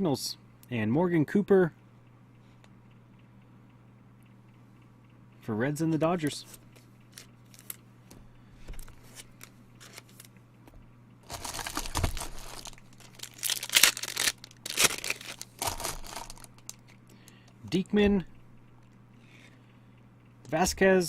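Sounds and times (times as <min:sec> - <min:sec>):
soft card handling clicks: 0:06.4 - 0:10.8
wrapper tearing and crinkling: 0:07.1 - 0:07.8, 0:09.8 - 0:10.3, 0:11.2 - 0:17.0.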